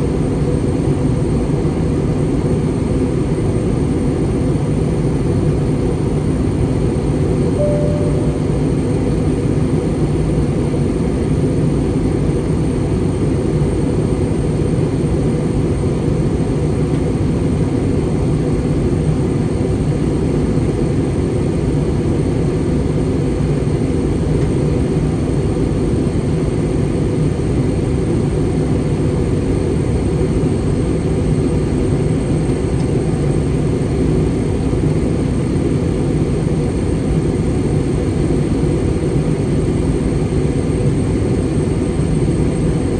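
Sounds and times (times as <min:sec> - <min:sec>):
airliner cabin airflow and engine drone: 0:00.0 - 0:42.9
faint thin high tone: 0:07.6 - 0:09.3.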